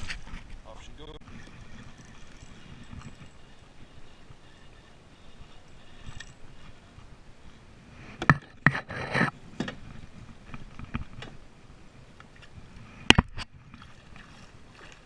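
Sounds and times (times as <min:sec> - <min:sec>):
sharp knocks and clatters: 0:08.2 - 0:09.8.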